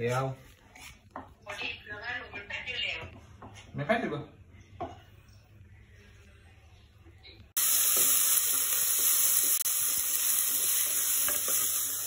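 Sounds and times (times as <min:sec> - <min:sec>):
onion and garlic sizzling in oil: 0:07.6 - 0:12.0.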